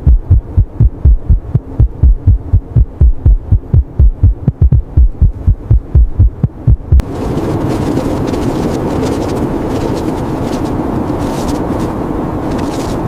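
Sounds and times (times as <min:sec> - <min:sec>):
heartbeat thumps: 0:00.0 - 0:07.1
blizzard wind roaring: 0:05.3 - 0:13.0.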